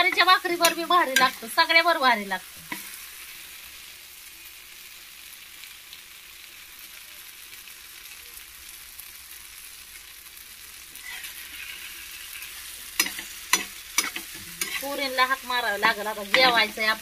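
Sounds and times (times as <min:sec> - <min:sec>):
steel spatula stirring: 0:00.0 - 0:01.5, 0:11.0 - 0:15.2, 0:16.2 - 0:16.8
food sizzling in a pan: 0:00.0 - 0:17.0.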